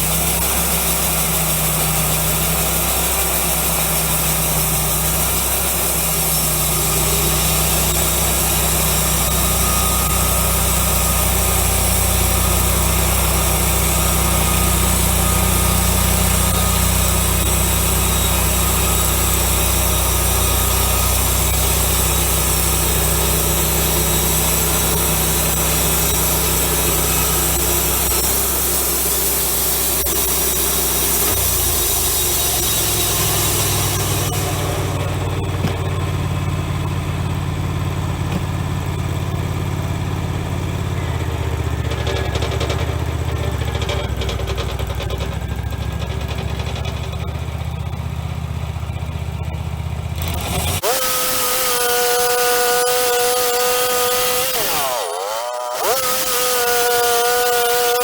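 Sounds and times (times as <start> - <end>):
blade hiss: 0.0 - 35.4
bandsaw mill engine running: 0.0 - 58.0.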